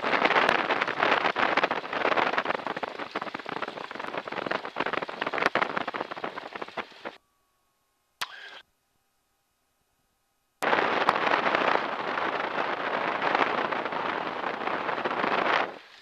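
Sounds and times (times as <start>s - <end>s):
crackling intercom noise: 10.6s - 16.0s.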